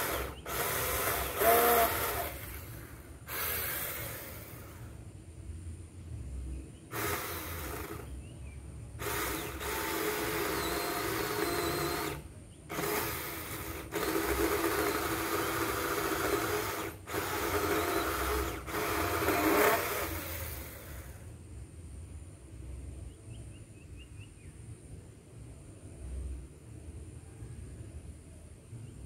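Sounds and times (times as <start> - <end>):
electric chainsaw cutting wood: 0.0 - 5.0, 6.9 - 8.1, 9.0 - 21.2.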